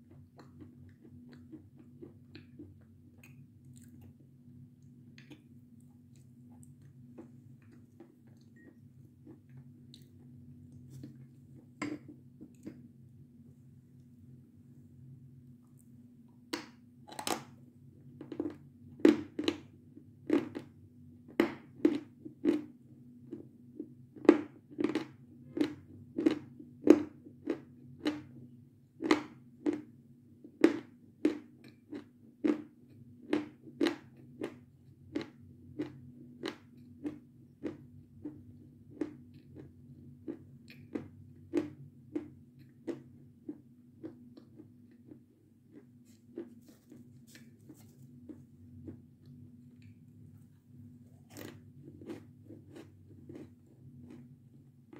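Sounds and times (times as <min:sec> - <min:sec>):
crunchy chewing: 0:00.0 - 0:04.2, 0:33.3 - 0:50.5, 0:51.1 - 0:54.5.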